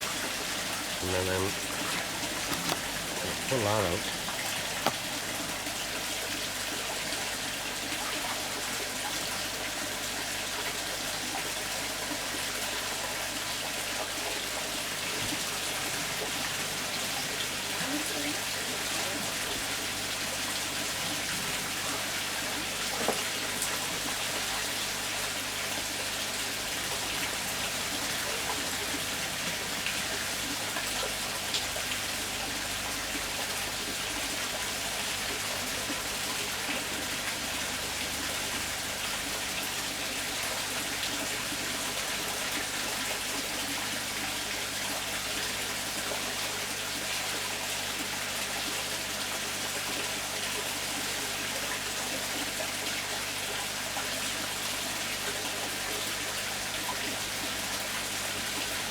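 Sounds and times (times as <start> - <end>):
water rushing: 0.0 - 7.4.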